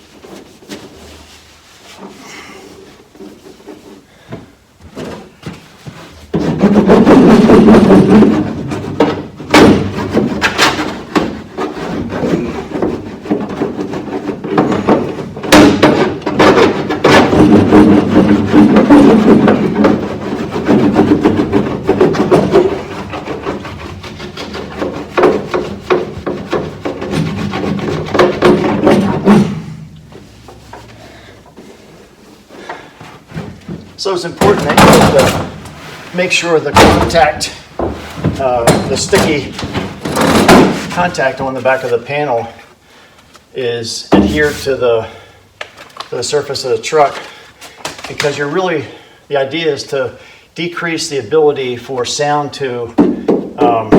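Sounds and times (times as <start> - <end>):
mat scraping and rubbing on metal: 0.0 - 42.8, 43.5 - 45.3
sharp knocks on metal panel: 14.6 - 20.0.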